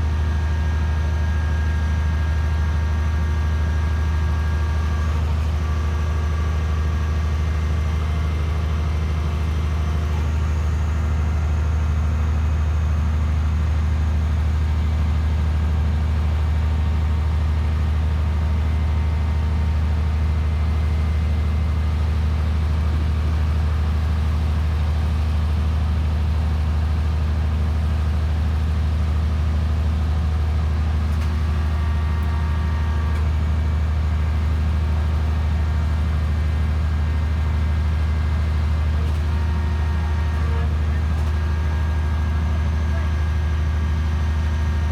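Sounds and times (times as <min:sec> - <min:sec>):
machine engine droning: 0:37.6 - 0:44.9.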